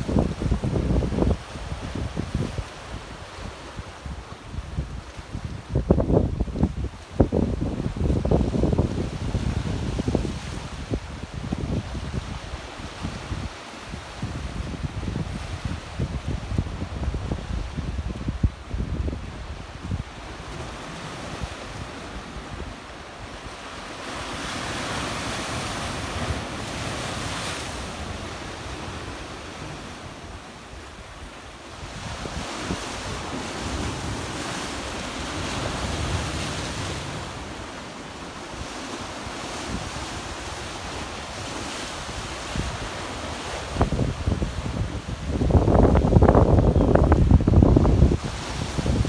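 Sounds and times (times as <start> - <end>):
wind rumbling on microphone: 0.0 - 22.8, 38.6 - 49.0.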